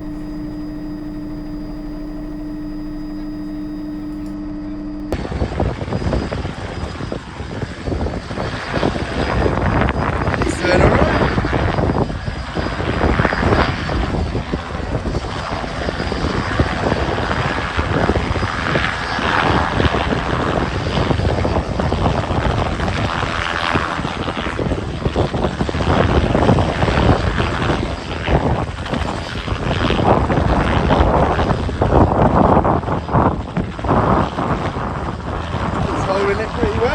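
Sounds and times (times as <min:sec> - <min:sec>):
helicopter hovering: 0:00.0 - 0:05.2.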